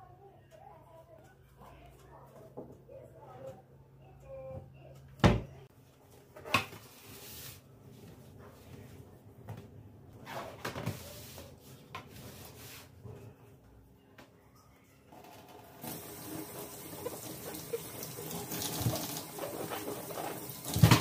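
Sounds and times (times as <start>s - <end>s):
household items clattering: 15.8s - 21.0s.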